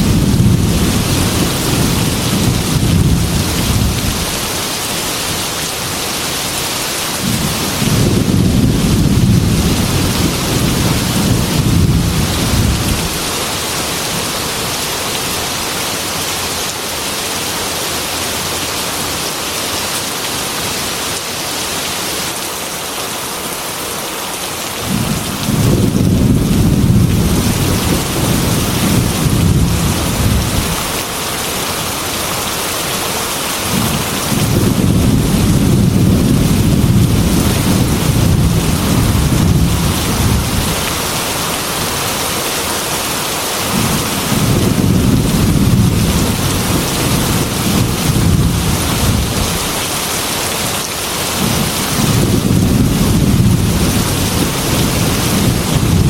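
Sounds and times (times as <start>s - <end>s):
thunder rumbling: 0.0s - 4.7s, 7.2s - 14.8s, 24.8s - 31.1s, 33.6s - 41.3s, 43.7s - 50.2s, 51.2s - 56.0s
heavy rain: 0.0s - 56.0s.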